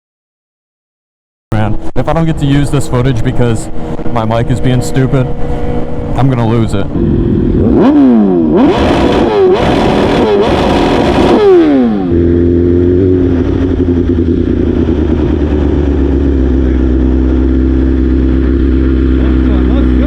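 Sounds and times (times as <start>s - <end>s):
rushing wind: 1.6s - 17.2s
motorcycle engine upshifting: 1.8s - 20.0s
motorcycle engine idling: 12.1s - 20.0s.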